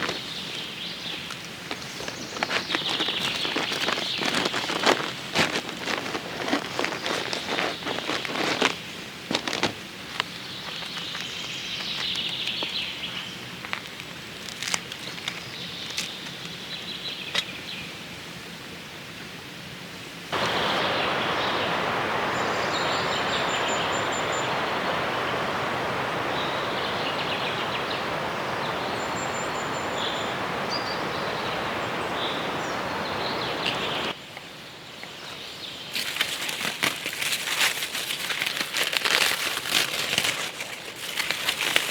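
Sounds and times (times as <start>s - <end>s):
birds chirping: 0.0s - 9.6s, 20.4s - 36.2s
loud steady rushing noise: 20.3s - 34.2s.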